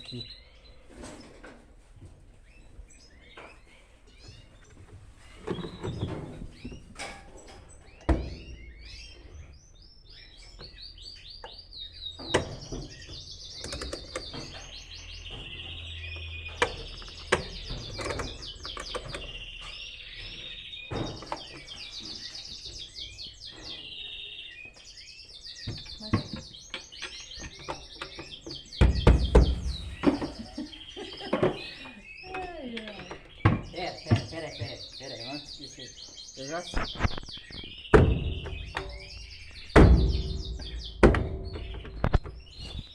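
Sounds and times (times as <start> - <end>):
songbirds chirping: 0.0 - 42.9
louder thumps: 28.8 - 30.4, 39.7 - 42.4
sharp knocks: 28.8 - 30.4, 39.7 - 42.4.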